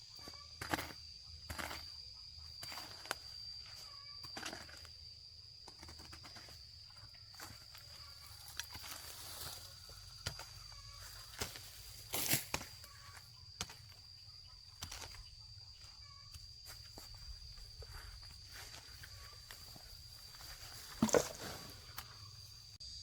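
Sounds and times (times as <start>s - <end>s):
high-pitched insect drone: 0.0s - 23.0s
knocks and rustles of work: 20.3s - 22.1s.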